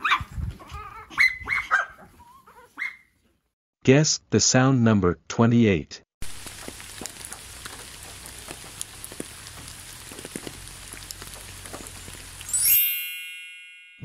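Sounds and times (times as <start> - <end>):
raindrops ticking: 6.2 - 12.7
rain falling: 6.2 - 12.9.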